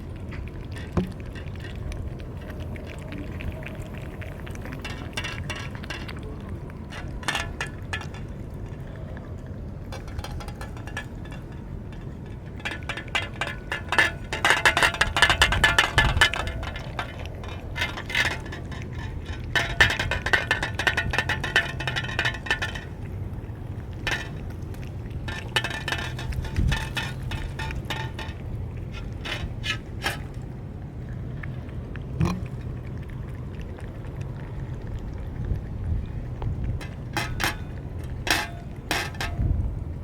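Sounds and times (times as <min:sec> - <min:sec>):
dry cat food clinking in dishes: 0:06.8 - 0:08.4, 0:09.9 - 0:23.0, 0:25.2 - 0:30.4, 0:36.8 - 0:39.5.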